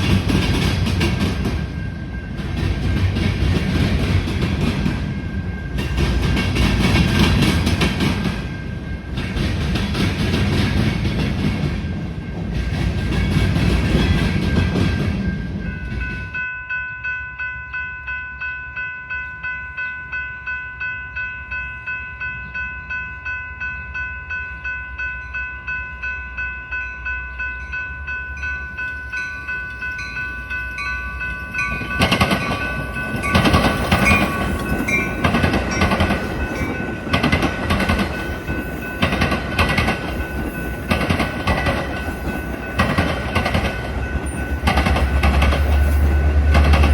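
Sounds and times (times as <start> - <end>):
grade-crossing bell ringing: 0.0 - 46.9
train rumbling past: 0.0 - 46.9
wheels clattering over rail joints: 30.0 - 46.9.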